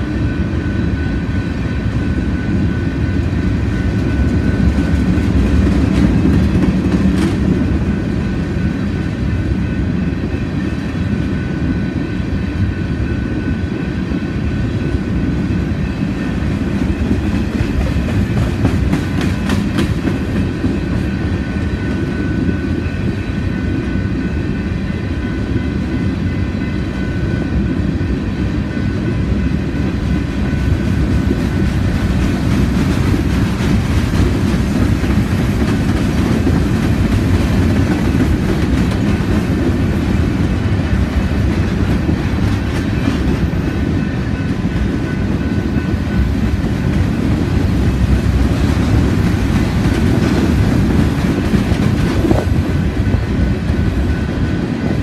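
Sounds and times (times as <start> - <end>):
train wheels rumbling on rails: 0.0 - 55.0
wheels clicking over rail joints: 16.8 - 21.1.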